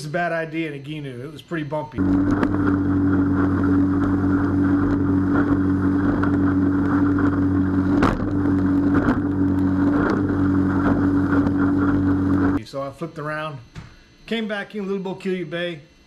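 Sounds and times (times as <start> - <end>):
outboard motor running: 2.0 - 12.6
water rushing along hull: 2.0 - 12.6.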